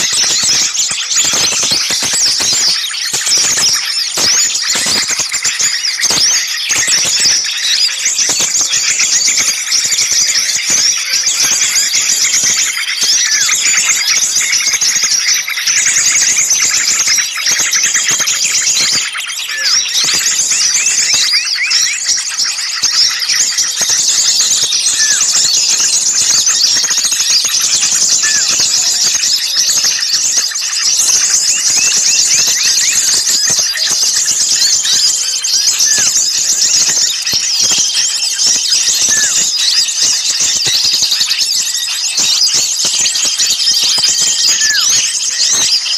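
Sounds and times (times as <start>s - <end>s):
songbirds chattering and chirping: 0.0s - 45.9s.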